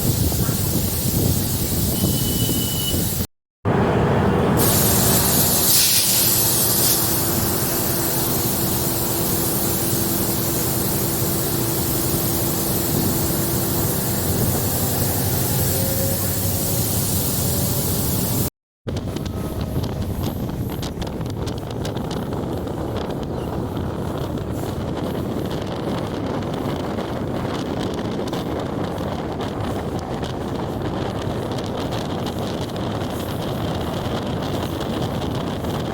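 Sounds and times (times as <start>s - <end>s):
train running noise: 0.0s - 35.9s
wind buffeting microphone: 0.0s - 35.9s
steady hum: 3.7s - 21.0s.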